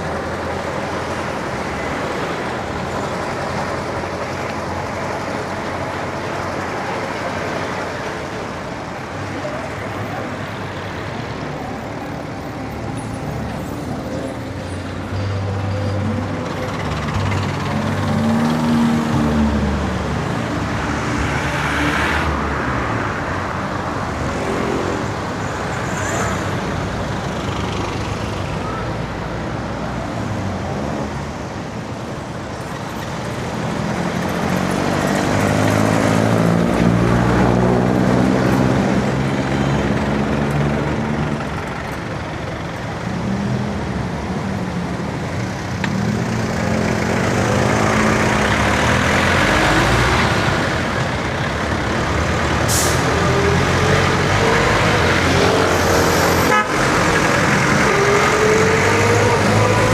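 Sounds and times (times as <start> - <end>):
road and wind noise: 0.0 - 59.9
vehicles passing close by: 0.0 - 59.9.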